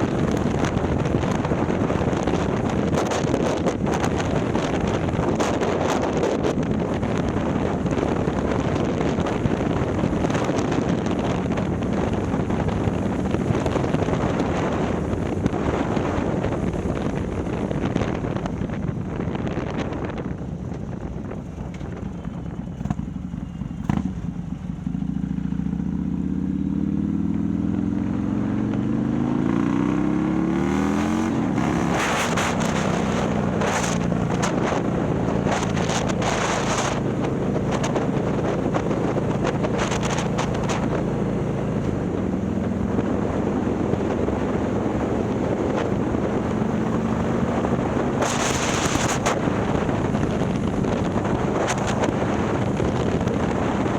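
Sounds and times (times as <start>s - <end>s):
wind gusts on microphone: 0.0s - 25.6s, 26.4s - 53.9s
motorcycle accelerating hard: 0.0s - 53.9s.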